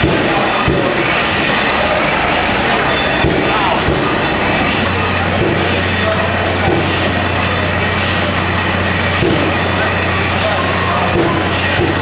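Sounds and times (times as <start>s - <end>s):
machinery noise: 0.0s - 12.0s
stationary engine droning: 0.0s - 12.0s.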